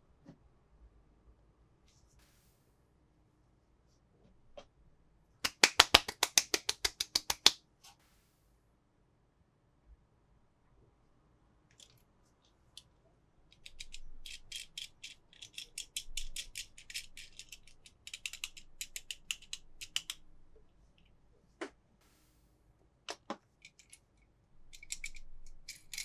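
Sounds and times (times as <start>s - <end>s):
plastic toy parts clicking: 5.5s - 7.6s, 13.6s - 20.2s, 24.7s - 26.0s.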